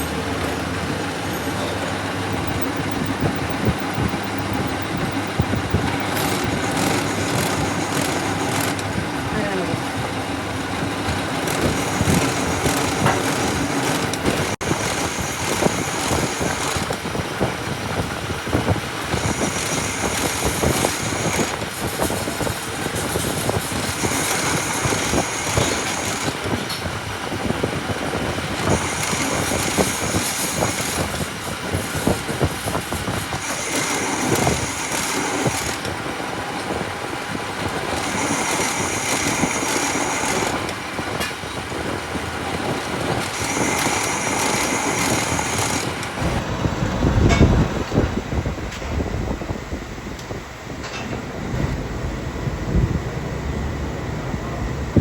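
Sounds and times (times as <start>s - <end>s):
high-pitched machine whine: 0.0s - 26.9s, 43.2s - 55.0s
metalworking machine crackling: 0.0s - 55.0s.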